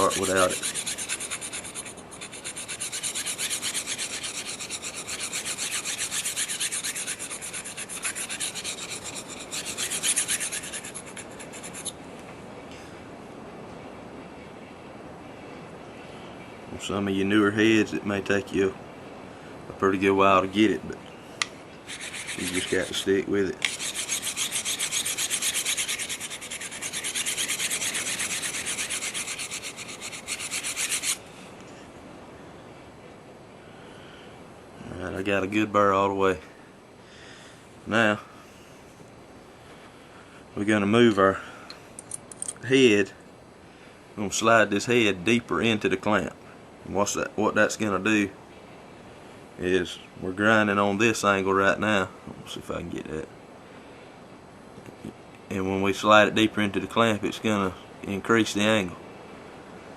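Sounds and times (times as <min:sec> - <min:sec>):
blade scraping on sharpener: 0:00.0 - 0:12.0, 0:21.9 - 0:31.2.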